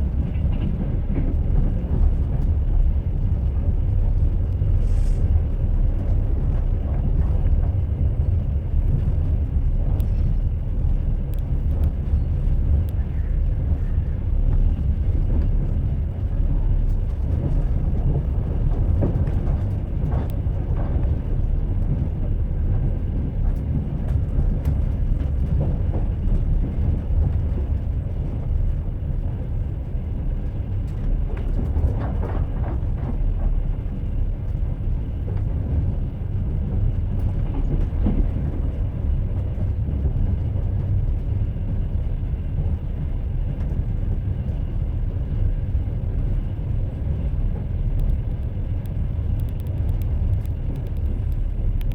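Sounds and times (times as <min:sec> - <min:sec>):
train rumbling on rails: 0:00.0 - 0:51.9
train wheels clicking: 0:43.5 - 0:51.9.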